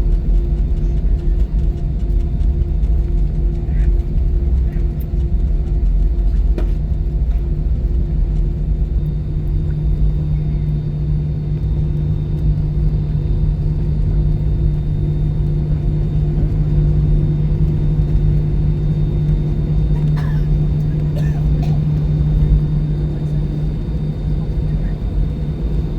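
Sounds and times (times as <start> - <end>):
aircraft cabin engine drone: 0.0 - 25.9
deep rumble: 0.0 - 25.9
steady hum: 0.0 - 25.9.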